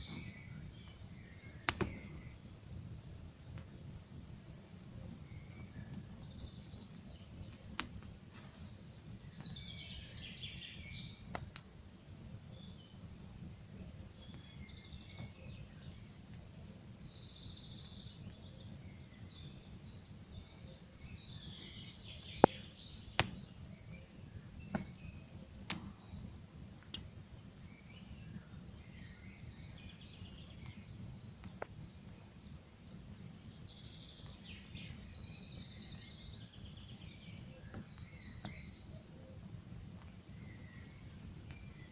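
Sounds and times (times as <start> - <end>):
birds singing: 0.0 - 41.9
campfire crackling and popping: 0.1 - 4.8, 5.4 - 8.4, 10.8 - 12.3, 22.4 - 27.6, 30.5 - 33.0.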